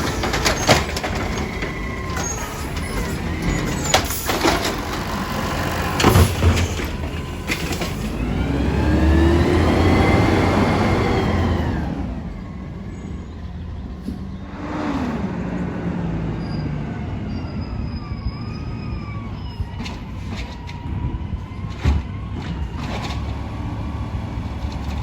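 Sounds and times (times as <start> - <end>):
diesel engine revving: 0.0 - 19.8, 20.8 - 25.0
low engine rumble: 20.8 - 25.0.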